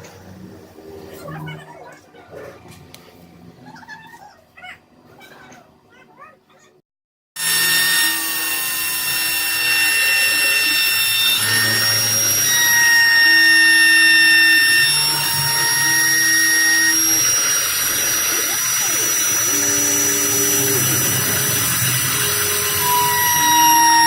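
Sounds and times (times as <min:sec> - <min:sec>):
machine high whine over hiss: 0:07.4 - 0:24.0
motor hum: 0:07.4 - 0:24.0.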